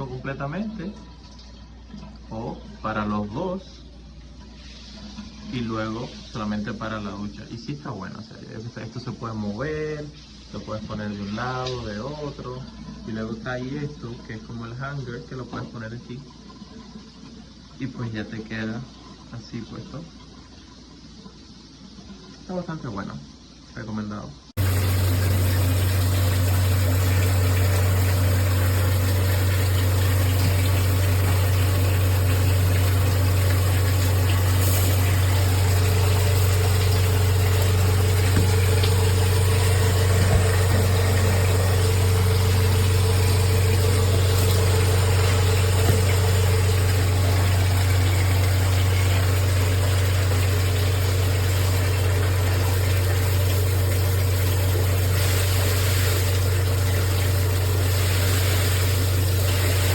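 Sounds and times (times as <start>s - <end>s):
shower spraying water: 24.6s - 59.9s.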